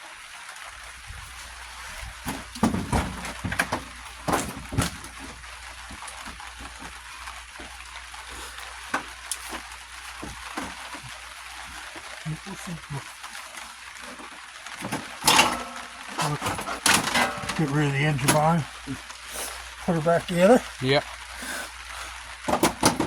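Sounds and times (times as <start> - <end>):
metal tools clanking: 2.2 - 5.4, 14.8 - 18.6.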